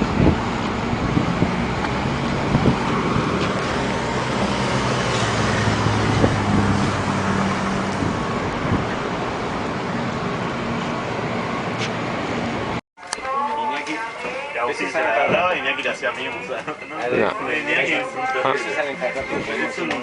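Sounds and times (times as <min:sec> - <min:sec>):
car engine hum: 0:00.0 - 0:12.8
road noise: 0:00.0 - 0:20.0.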